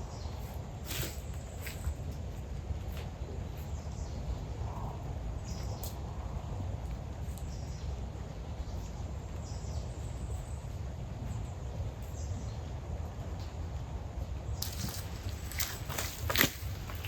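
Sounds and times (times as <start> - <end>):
steady low rumble: 0.0 - 17.0
sharp rustle: 0.4 - 2.1, 14.6 - 17.0.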